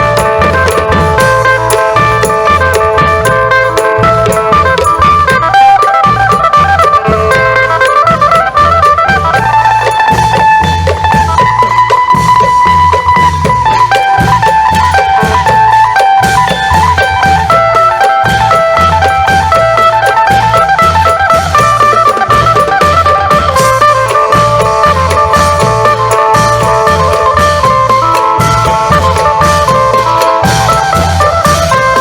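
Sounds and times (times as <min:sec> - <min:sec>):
long drums beating: 0:00.0 - 0:32.0
plucked lute melody: 0:00.0 - 0:32.0.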